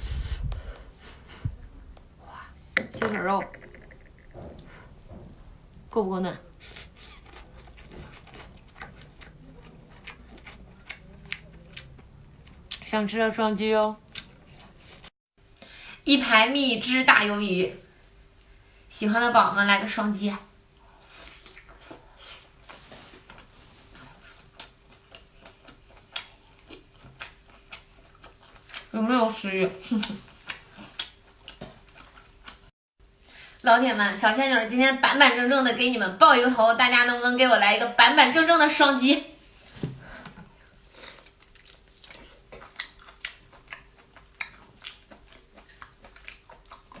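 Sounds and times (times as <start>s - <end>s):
wet chewing clicks and smacks: 24.3s - 28.9s, 30.0s - 32.7s, 41.2s - 47.0s.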